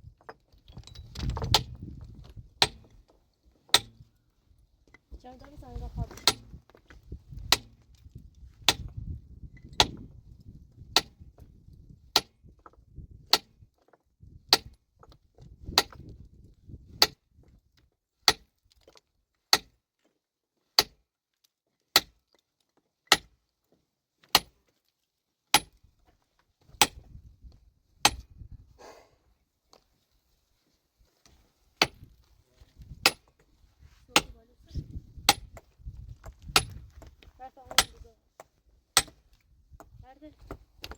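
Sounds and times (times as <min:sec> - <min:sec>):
metal tool striking stone: 0:02.6 - 0:03.0, 0:03.7 - 0:04.0, 0:06.2 - 0:06.6, 0:07.5 - 0:07.8, 0:09.7 - 0:10.0, 0:23.1 - 0:23.3, 0:24.3 - 0:24.5, 0:25.5 - 0:25.8, 0:28.0 - 0:28.3, 0:33.0 - 0:33.4, 0:35.3 - 0:39.2.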